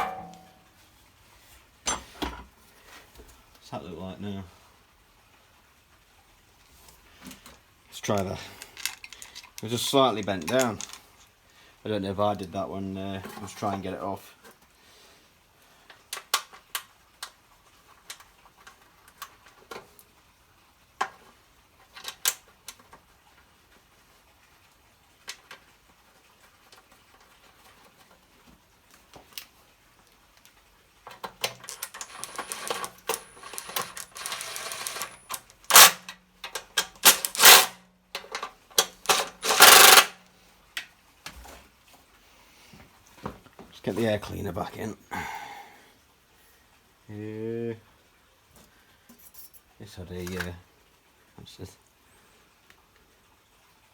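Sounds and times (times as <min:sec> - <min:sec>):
metal tools clattering and knocking: 0:00.0 - 0:00.6, 0:01.9 - 0:02.4, 0:31.4 - 0:40.1.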